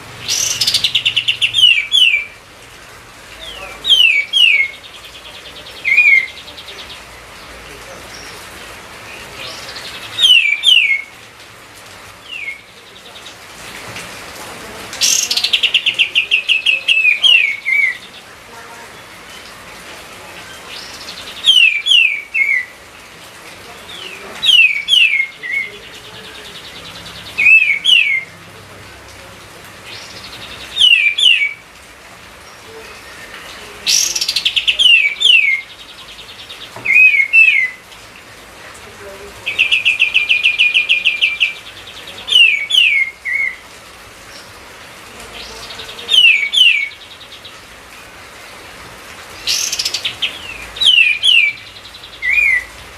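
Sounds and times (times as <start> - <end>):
songbird whistling: 10.2 - 11.1, 50.8 - 52.7.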